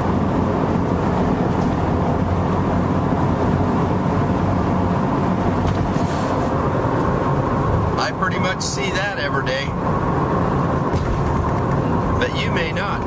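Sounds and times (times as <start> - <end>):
vehicle cabin rumble: 0.0 - 13.0.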